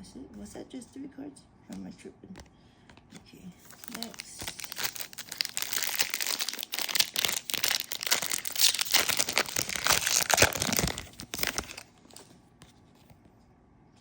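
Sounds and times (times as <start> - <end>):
wrapper tearing and crinkling: 3.7 - 12.3.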